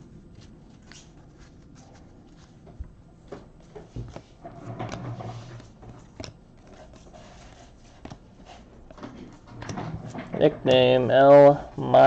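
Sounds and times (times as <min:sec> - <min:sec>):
cards rustling: 0:00.0 - 0:02.8, 0:03.6 - 0:09.0.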